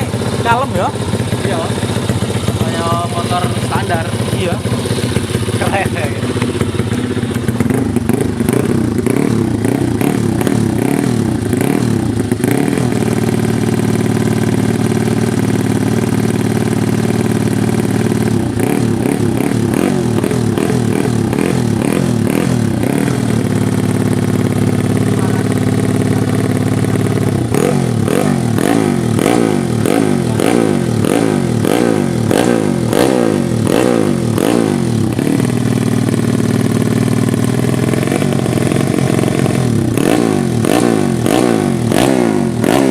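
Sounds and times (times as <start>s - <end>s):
motorcycle engine idling: 0.0s - 42.9s
motorcycle engine revving: 0.0s - 42.9s.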